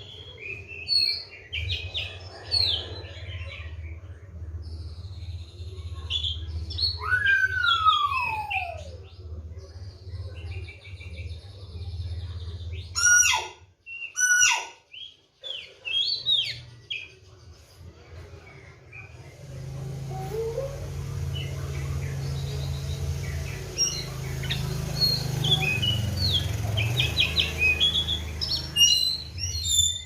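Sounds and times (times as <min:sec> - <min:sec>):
bird singing whistles and trills: 0:06.2 - 0:09.1, 0:22.4 - 0:30.0.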